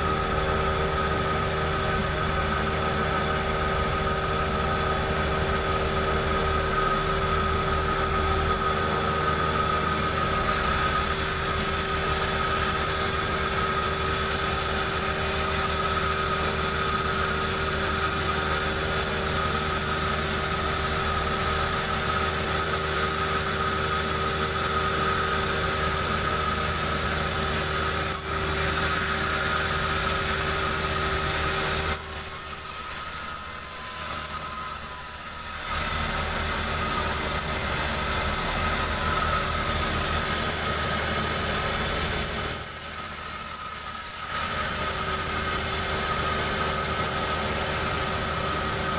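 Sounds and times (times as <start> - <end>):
chainsaw cutting a log: 0.0 - 48.9.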